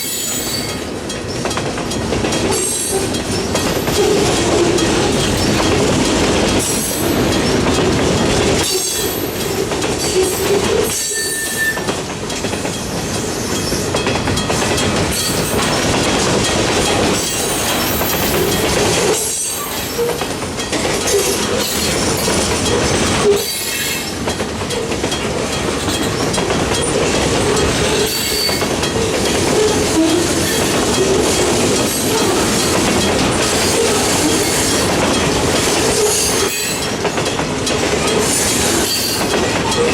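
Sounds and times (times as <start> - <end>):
freight train wheels rumbling: 0.0 - 39.9
train cars clattering: 0.0 - 39.9
wheel squeals: 10.0 - 11.9, 27.9 - 31.5.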